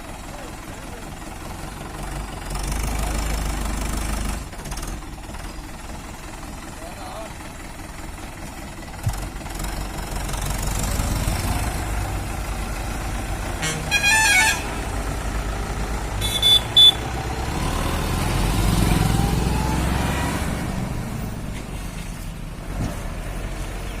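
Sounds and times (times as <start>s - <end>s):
diesel tractor engine running: 0.0s - 24.0s
short high-pitched horn toots: 13.6s - 14.8s, 16.2s - 17.0s
vehicle horn blast: 13.6s - 14.8s, 16.2s - 17.1s.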